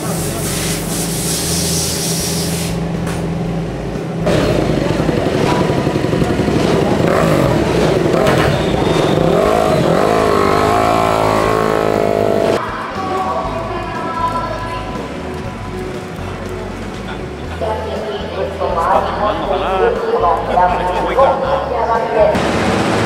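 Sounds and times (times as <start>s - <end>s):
motorcycle engine revving: 0.0s - 12.6s, 22.3s - 23.0s
background music: 3.2s - 22.4s.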